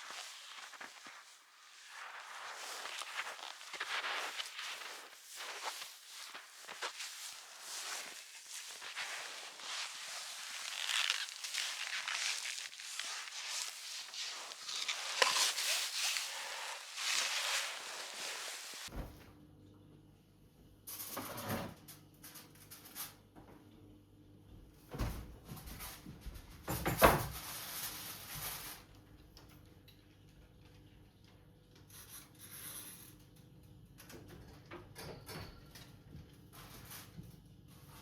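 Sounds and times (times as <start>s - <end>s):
knocks clatter and rubbing: 5.6s - 18.9s.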